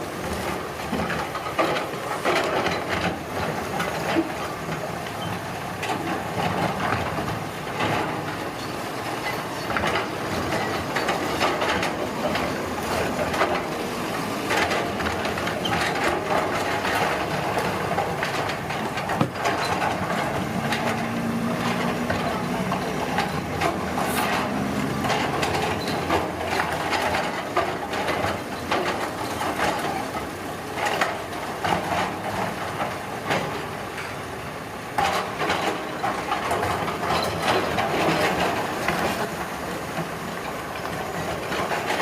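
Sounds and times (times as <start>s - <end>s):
construction machinery din: 0.0s - 42.0s
clatters and knocks: 14.4s - 34.2s
low engine hum: 19.8s - 26.9s.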